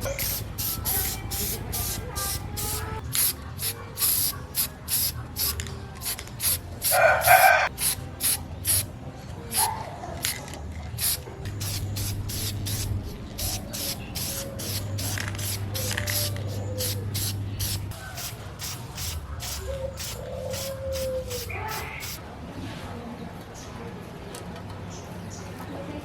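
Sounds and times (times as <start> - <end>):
spray paint hissing in bursts: 0.0 - 8.9, 11.0 - 22.2.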